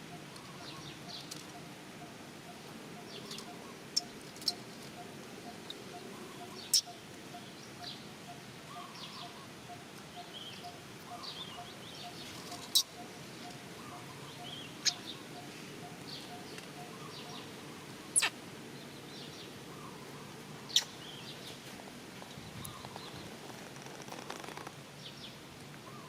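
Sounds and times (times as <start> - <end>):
bird chirps: 0.1 - 18.4, 20.7 - 21.5
sharp high-pitched calls: 18.1 - 18.4.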